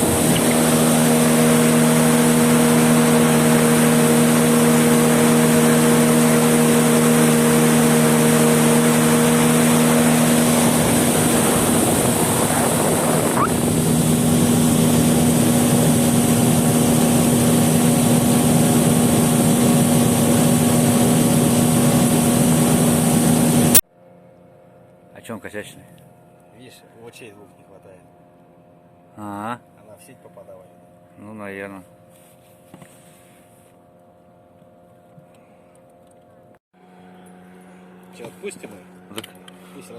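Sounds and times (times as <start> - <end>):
water wash: 0.0 - 23.8
motorboat engine running: 0.0 - 24.8, 31.8 - 39.9.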